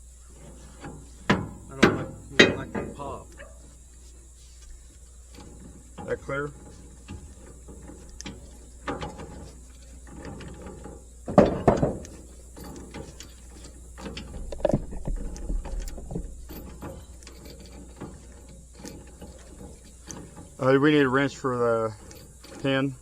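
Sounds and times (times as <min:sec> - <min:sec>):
metal clanking and rattling: 0:00.0 - 0:23.0.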